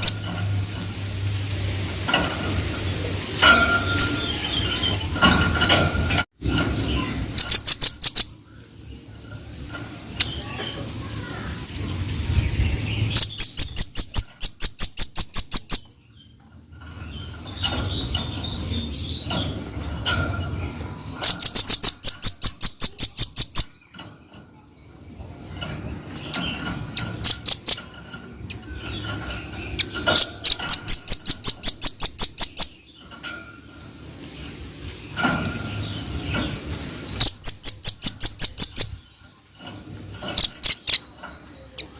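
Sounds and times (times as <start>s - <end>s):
bird singing rapid trills: 0.0s - 1.2s, 2.8s - 41.9s.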